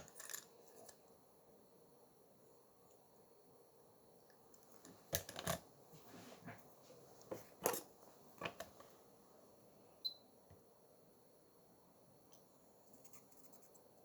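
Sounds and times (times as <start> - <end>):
small tools clicking and scraping: 0.0 - 1.0.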